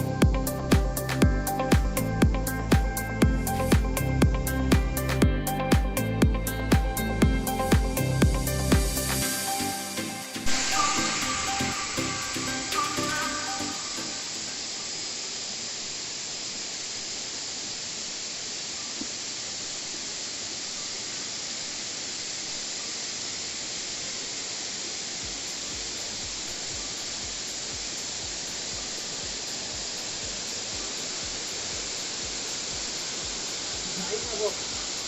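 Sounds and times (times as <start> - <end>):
waterfall rushing: 8.5 - 35.0.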